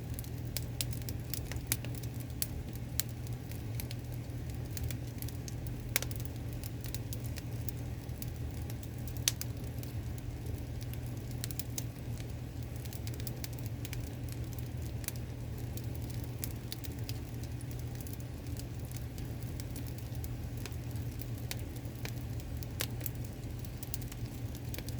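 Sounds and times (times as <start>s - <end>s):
low fire rumble: 0.0s - 24.9s
wood fire crackling and popping: 0.0s - 24.9s.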